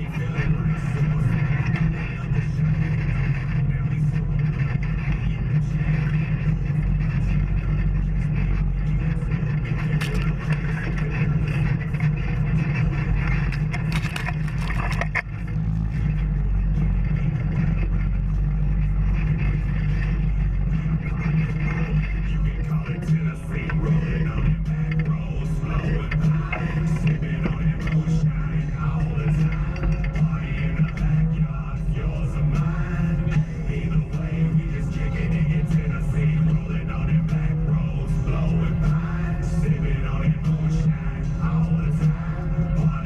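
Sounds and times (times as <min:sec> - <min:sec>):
off-road vehicle engine running: 0:00.0 - 0:43.0
knocks and scrapes: 0:01.1 - 0:24.0.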